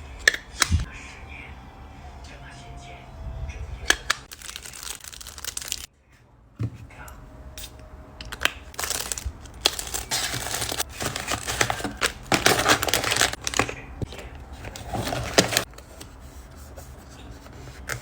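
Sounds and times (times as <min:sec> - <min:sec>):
plastic packaging crinkling: 0:04.3 - 0:05.9, 0:08.3 - 0:15.8.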